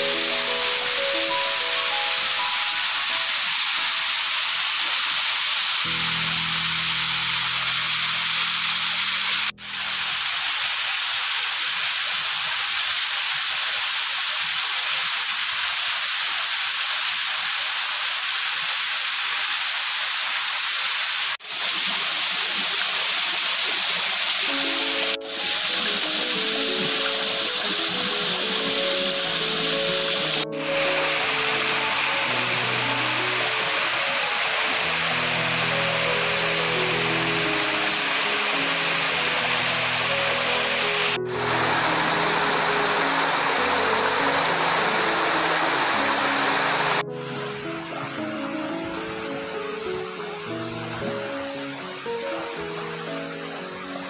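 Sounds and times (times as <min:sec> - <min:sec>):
soft background music: 0:00.0 - 0:03.9, 0:05.9 - 0:09.6, 0:24.5 - 0:54.0
stream water rushing: 0:00.0 - 0:54.0.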